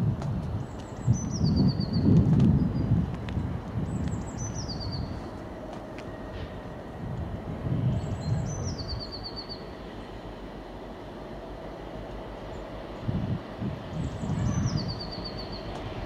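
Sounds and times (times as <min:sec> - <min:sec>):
train rumbling: 0:00.0 - 0:16.0
songbird singing: 0:00.6 - 0:03.0, 0:03.6 - 0:05.4, 0:07.8 - 0:10.0, 0:13.8 - 0:15.9.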